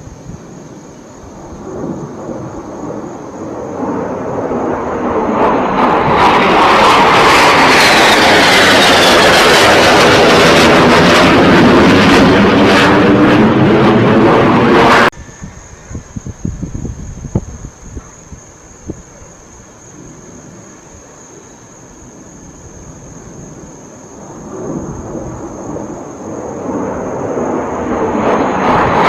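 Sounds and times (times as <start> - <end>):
low-flying aircraft passing overhead: 0.0 - 16.1, 19.8 - 29.0
aircraft whine falling in pitch: 0.7 - 16.7, 23.9 - 29.0.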